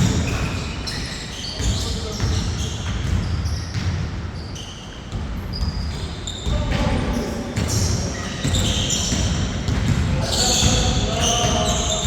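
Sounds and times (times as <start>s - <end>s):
sneakers squeaking on court: 0.0s - 12.0s
basketball bouncing: 1.6s - 4.3s, 5.1s - 7.0s, 7.6s - 12.0s.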